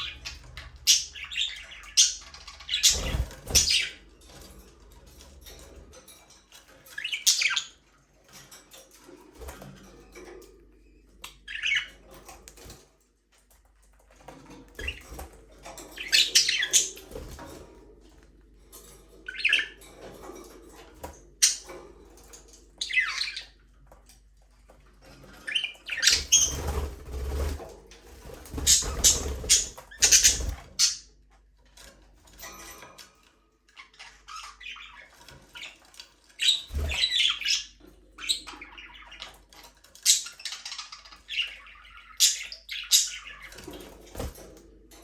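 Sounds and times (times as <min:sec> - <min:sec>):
budgerigars chirping and squawking: 0:00.0 - 0:04.2, 0:05.5 - 0:08.5, 0:10.8 - 0:12.8, 0:14.7 - 0:18.0, 0:18.7 - 0:23.7, 0:25.0 - 0:31.1, 0:33.6 - 0:44.6.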